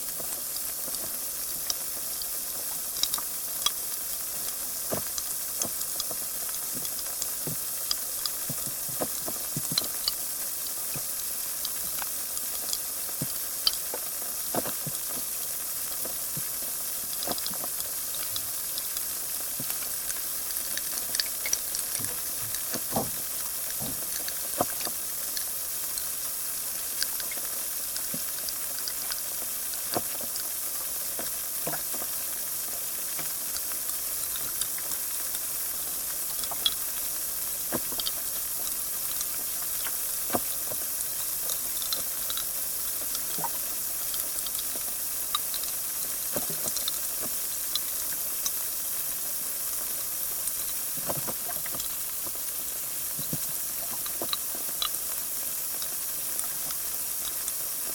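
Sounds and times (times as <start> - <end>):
carbonated water fizzing: 0.0 - 57.9.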